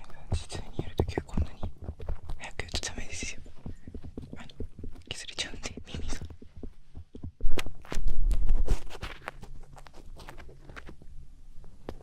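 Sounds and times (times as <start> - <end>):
scratchy clicks and scrapes: 0.0 - 11.1.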